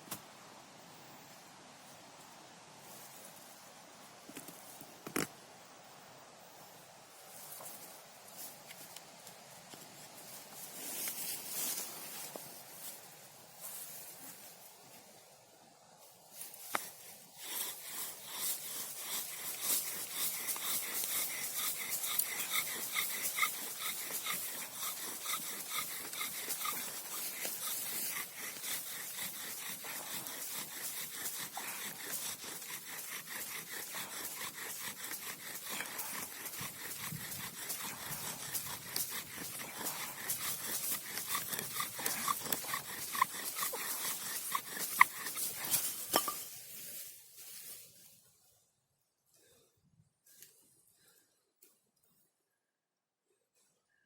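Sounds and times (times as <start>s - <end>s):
dry scraping hiss: 0.0s - 48.2s
bow-drill spindle squeaking: 17.8s - 45.9s.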